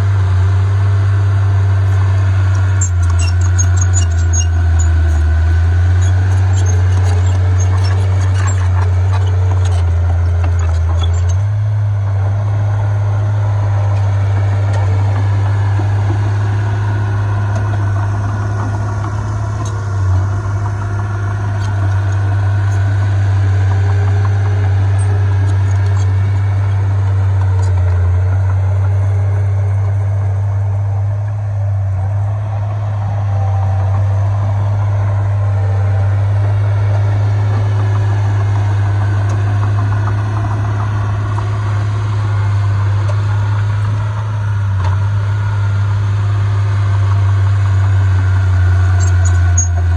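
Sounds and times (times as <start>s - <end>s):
diesel engine rumbling: 0.0s - 49.9s.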